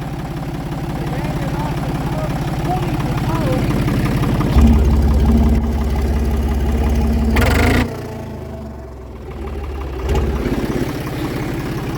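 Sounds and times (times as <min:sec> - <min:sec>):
tractor engine running: 0:00.0 - 0:11.9
loud noisy burst: 0:04.5 - 0:09.0.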